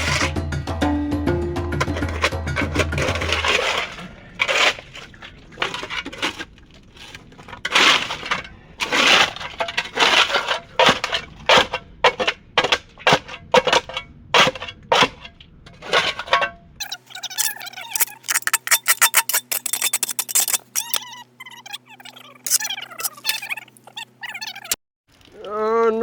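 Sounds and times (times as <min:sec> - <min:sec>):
scraper rasping on hull: 0:17.3 - 0:21.0.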